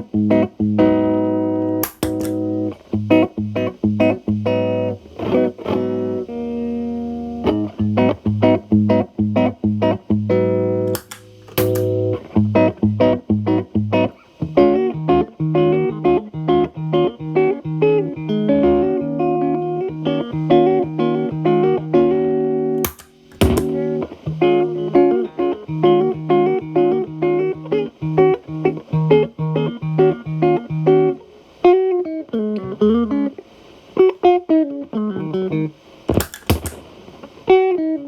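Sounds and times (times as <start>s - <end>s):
electric guitar picking: 0.0s - 33.4s, 34.0s - 38.0s
distorted electric guitar chord: 10.6s - 12.6s.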